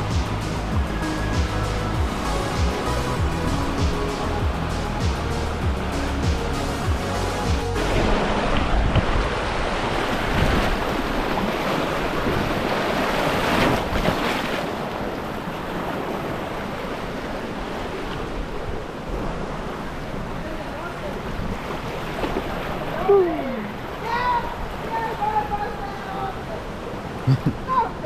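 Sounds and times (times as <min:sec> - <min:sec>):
wind on microphone: 0:00.0 - 0:14.2
river rapids rushing: 0:00.0 - 0:28.0.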